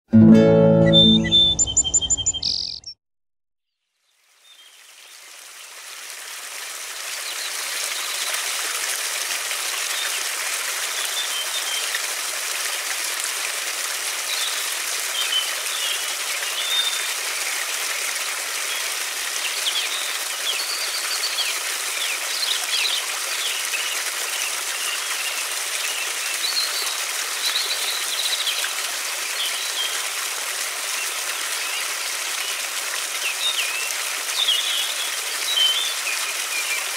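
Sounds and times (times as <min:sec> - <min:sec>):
small birds chirping: 0:00.9 - 0:03.0.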